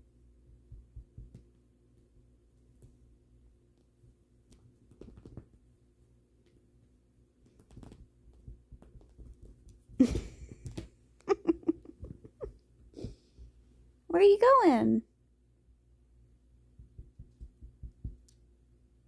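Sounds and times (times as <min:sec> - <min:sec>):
soft rustles: 0:00.7 - 0:11.0.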